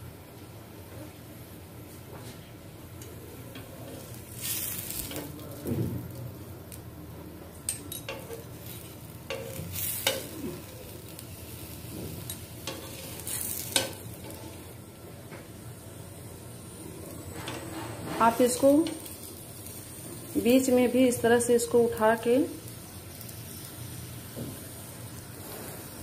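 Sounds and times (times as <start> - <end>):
oil sizzling under frying food: 3.0 - 26.0
spatula scraping a pan: 12.2 - 14.7.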